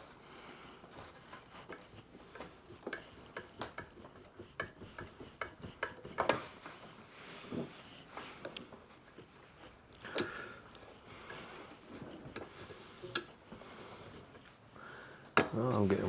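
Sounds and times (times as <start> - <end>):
hand tools clicking and tapping: 1.0 - 6.8, 8.4 - 14.5, 15.2 - 15.7.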